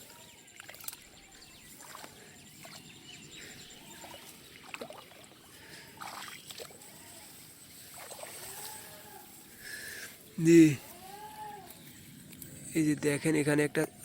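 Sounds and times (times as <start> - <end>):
water splashing and sloshing: 0.5 - 2.9, 4.0 - 6.8, 7.8 - 8.5.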